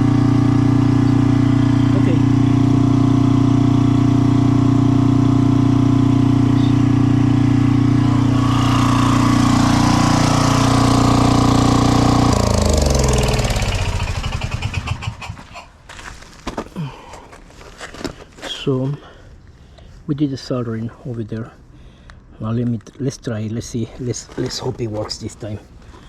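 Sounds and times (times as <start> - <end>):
small gasoline engine running: 0.0 - 15.7.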